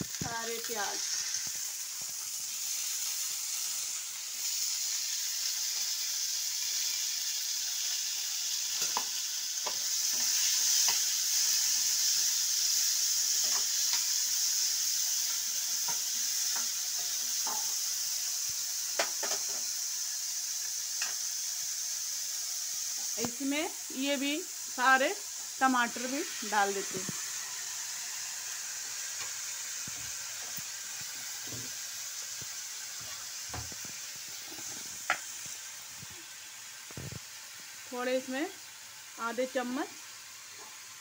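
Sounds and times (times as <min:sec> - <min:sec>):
vegetables sizzling in hot oil: 0:00.0 - 0:41.0
metal spatula scraping a pan: 0:34.3 - 0:34.9.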